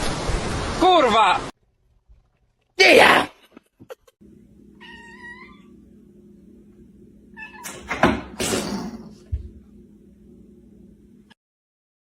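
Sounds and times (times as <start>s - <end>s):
low hum: 4.2s - 11.4s
cat meowing: 4.8s - 5.7s, 7.4s - 7.8s.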